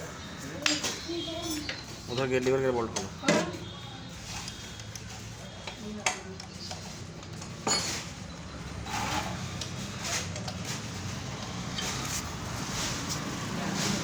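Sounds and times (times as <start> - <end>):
hand tools clinking on metal: 7.3 - 8.2.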